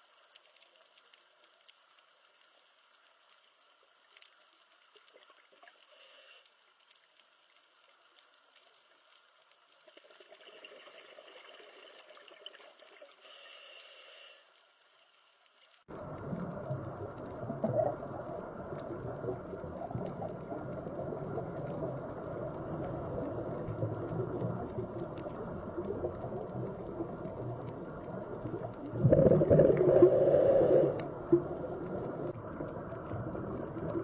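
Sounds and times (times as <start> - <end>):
faint running water: 0.0 - 34.0
water drips: 15.5 - 34.0.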